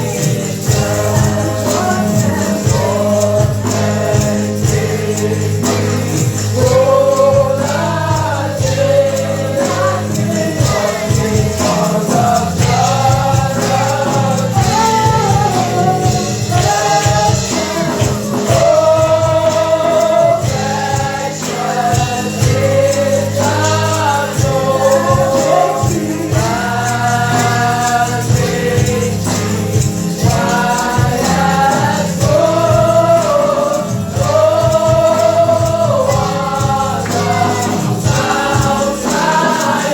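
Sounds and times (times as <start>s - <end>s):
band with bass: 0.0s - 39.9s
choir singing gospel music: 0.0s - 39.9s
tambourine shaking: 0.0s - 39.9s.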